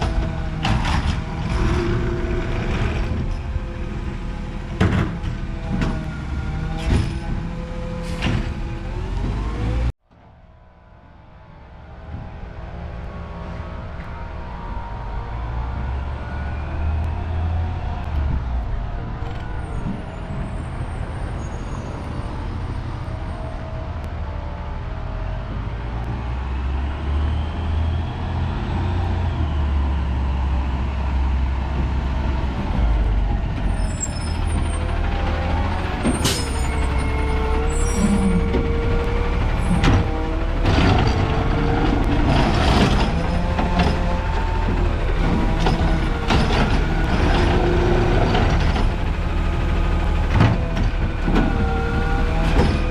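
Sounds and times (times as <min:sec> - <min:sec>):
metal clanks and squeals: 0:00.0 - 0:03.8, 0:04.8 - 0:09.4, 0:19.2 - 0:23.6, 0:33.3 - 0:52.9
diesel engine running: 0:12.0 - 0:52.9.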